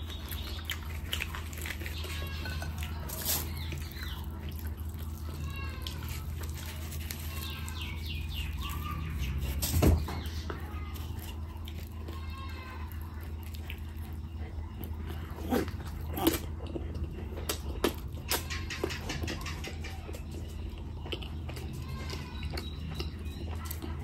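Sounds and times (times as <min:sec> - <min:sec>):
steady low hum: 0:00.0 - 0:24.0
wet chewing and smacking: 0:00.0 - 0:24.0.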